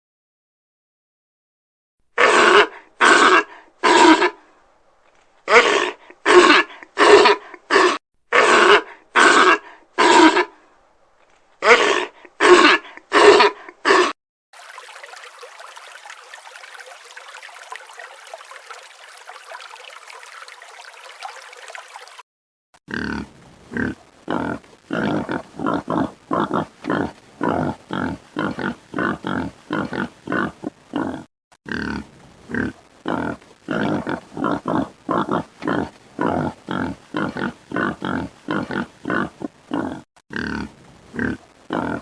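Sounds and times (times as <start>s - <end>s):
animal grunting: 22.9s - 42.0s.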